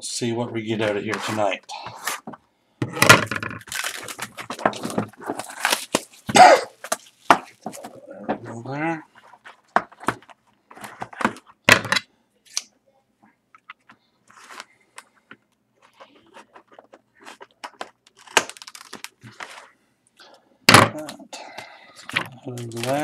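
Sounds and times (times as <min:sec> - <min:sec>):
tearing and crinkling of wrapping: 0:03.6 - 0:07.9, 0:15.8 - 0:19.6, 0:22.3 - 0:23.0.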